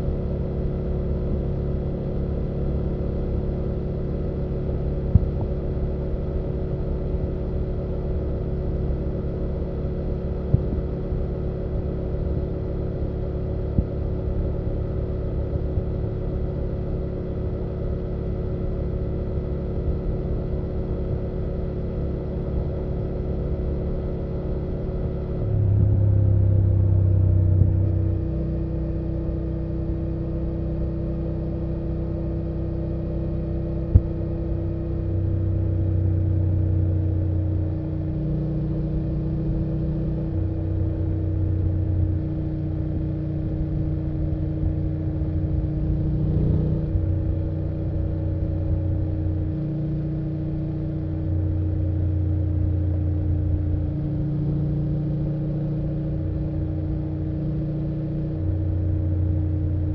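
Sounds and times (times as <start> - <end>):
motorcycle engine droning: 38.8 - 59.9.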